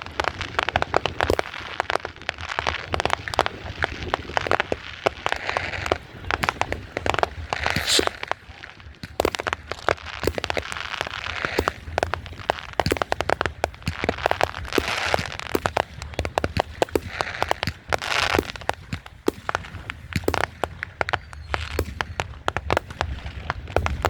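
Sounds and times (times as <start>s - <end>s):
fireworks crackling and popping: 0.0s - 24.0s
firework hiss: 5.4s - 15.9s.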